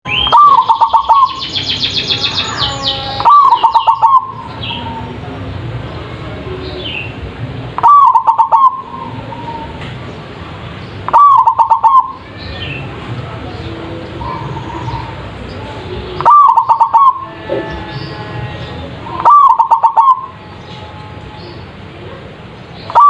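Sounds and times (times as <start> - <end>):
high fast bird trill: 0.1 - 4.9, 7.8 - 9.7, 11.0 - 12.8, 16.2 - 18.2, 19.1 - 20.4, 22.8 - 23.0
dove cooing: 0.2 - 1.4, 2.6 - 5.1, 7.8 - 9.8, 11.1 - 12.2, 14.2 - 15.3, 16.2 - 17.9, 19.0 - 20.4.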